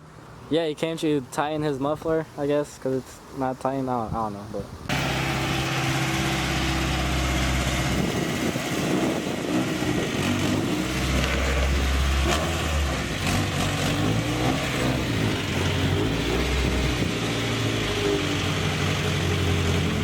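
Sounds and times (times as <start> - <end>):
car engine at high idle: 4.9 - 13.9, 14.5 - 20.0.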